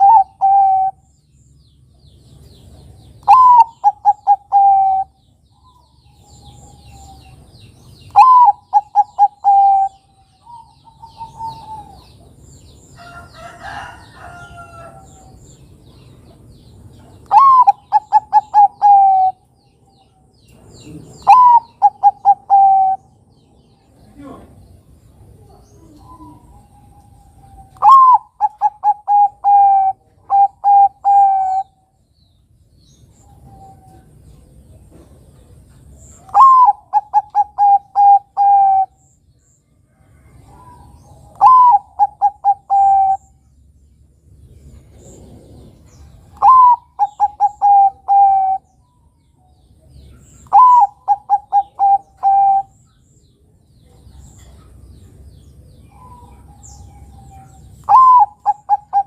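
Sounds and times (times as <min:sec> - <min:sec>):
dove cooing: 0:00.0 - 0:01.0, 0:03.2 - 0:07.4, 0:08.1 - 0:12.3, 0:17.2 - 0:19.4, 0:20.8 - 0:23.2, 0:25.4 - 0:31.9, 0:36.2 - 0:39.0, 0:40.2 - 0:43.4, 0:44.9 - 0:48.7, 0:50.2 - 0:52.8, 0:55.9 - 0:59.0.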